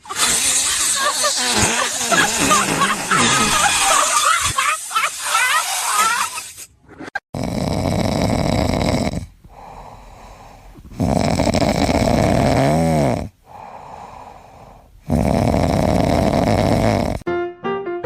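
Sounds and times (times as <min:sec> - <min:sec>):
animal snoring: 0:00.0 - 0:04.0, 0:07.3 - 0:17.2
quiet breaths: 0:07.7 - 0:17.2.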